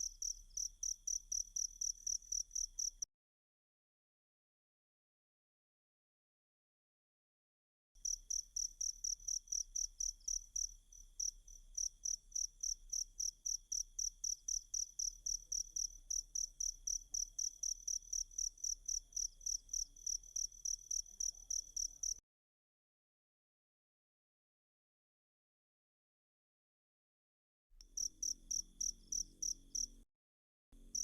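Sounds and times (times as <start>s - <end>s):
cricket chirping: 0.0s - 3.1s, 8.0s - 22.2s, 27.9s - 30.0s, 30.8s - 31.0s.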